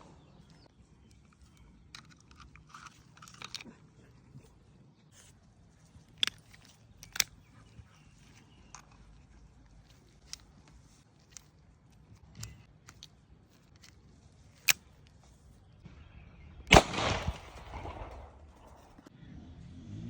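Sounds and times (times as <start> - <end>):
faint gun handling clicks: 0.2 - 15.7, 16.7 - 19.1
handgun shot: 16.7 - 19.0.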